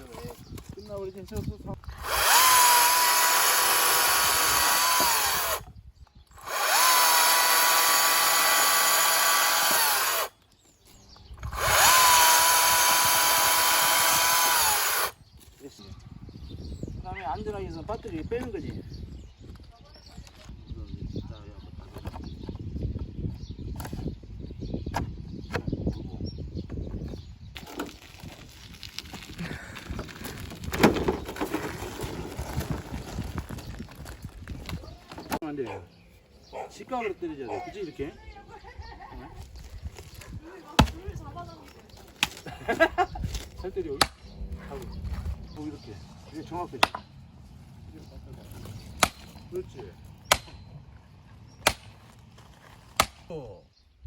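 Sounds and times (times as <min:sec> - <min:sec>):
electric chainsaw motor whine: 0:01.9 - 0:05.7, 0:06.4 - 0:10.3, 0:11.4 - 0:15.2.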